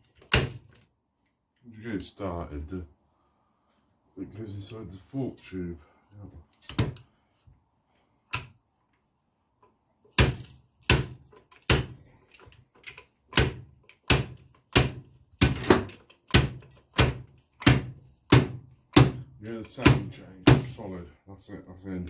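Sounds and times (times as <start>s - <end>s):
sharp metallic knocks: 0.0s - 0.7s, 10.2s - 12.0s, 13.4s - 20.9s.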